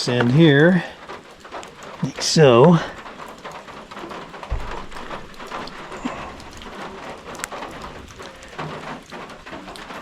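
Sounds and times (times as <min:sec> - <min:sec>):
rain pattering: 0:00.0 - 0:10.0
dull low thump: 0:04.5 - 0:06.9.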